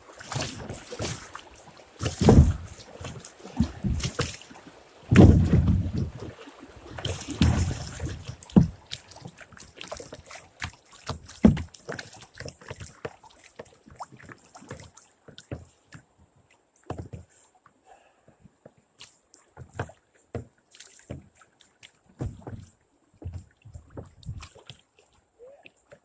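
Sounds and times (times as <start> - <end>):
water splashing off paddle: 0.0 - 15.8
paddle knocks: 2.0 - 4.4, 5.1 - 6.3, 7.0 - 9.0, 9.9 - 13.8, 16.9 - 17.3, 19.6 - 20.5, 22.1 - 24.6.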